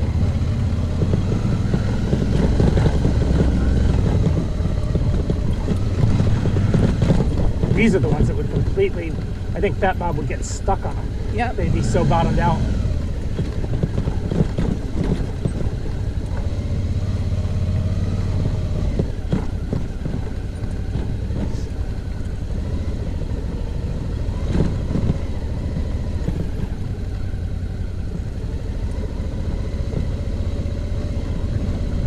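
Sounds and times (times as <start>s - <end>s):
motorbike engine running slowly: 0.0s - 32.0s.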